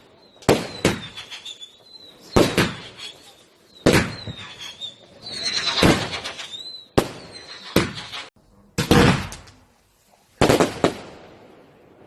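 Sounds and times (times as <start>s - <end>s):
firework bangs: 0.0s - 9.7s, 10.4s - 11.8s
firework whistle: 0.2s - 8.3s.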